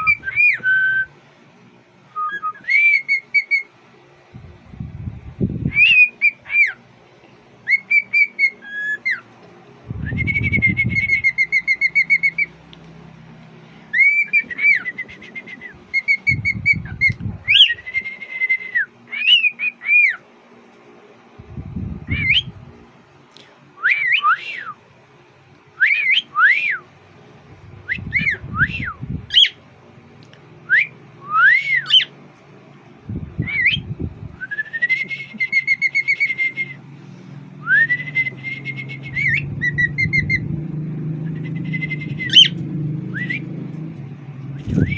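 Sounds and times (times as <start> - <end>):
cockatiel whistling a song: 0.0 - 1.1, 2.1 - 3.7, 5.7 - 6.8, 7.6 - 9.3, 10.0 - 12.5, 13.9 - 20.2, 22.0 - 22.6, 23.8 - 24.8, 25.8 - 26.9, 27.8 - 29.6, 30.6 - 32.1, 33.4 - 36.8, 37.6 - 40.5, 41.2 - 43.5, 44.5 - 44.9.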